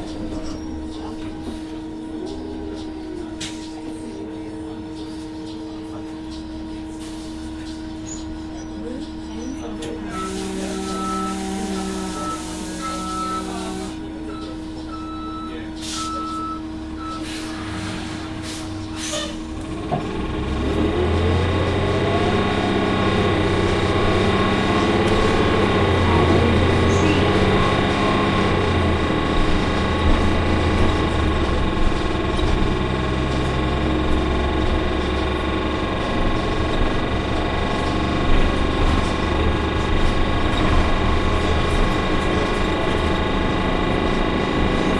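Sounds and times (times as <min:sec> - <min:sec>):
bus engine pulling away: 0:00.0 - 0:44.9
constant whine: 0:07.6 - 0:44.9
high beeping tone: 0:10.1 - 0:13.6.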